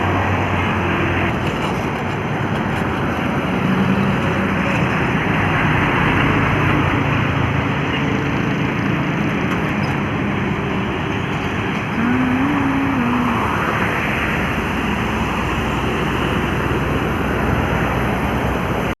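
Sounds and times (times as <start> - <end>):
heavy trucks on highway: 0.0 - 19.0
brief low tone: 12.0 - 13.5.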